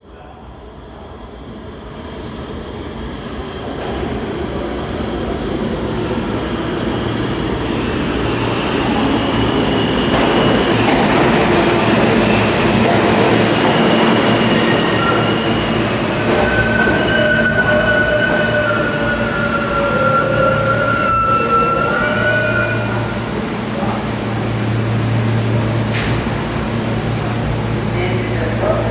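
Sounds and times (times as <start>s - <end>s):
subway train rumble: 0.0s - 28.9s
train brakes squealing: 7.2s - 28.9s.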